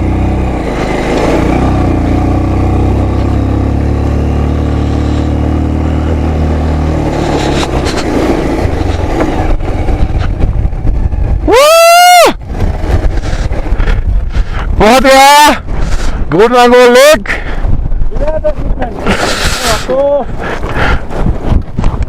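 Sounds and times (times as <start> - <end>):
motorcycle engine running: 0.0 - 11.6, 12.3 - 14.8
wind: 0.0 - 22.0.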